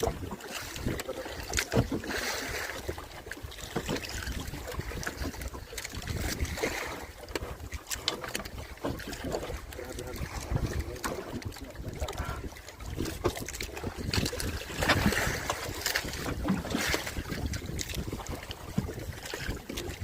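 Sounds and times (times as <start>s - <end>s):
water splashing and sloshing: 0.0s - 20.0s
wind buffeting microphone: 3.6s - 7.1s, 8.4s - 20.0s.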